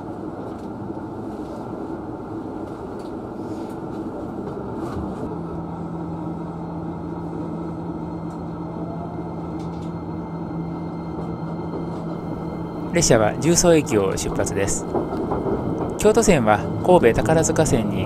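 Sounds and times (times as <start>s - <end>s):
electric train rumble: 0.0s - 18.0s
low steady hum: 5.2s - 18.0s.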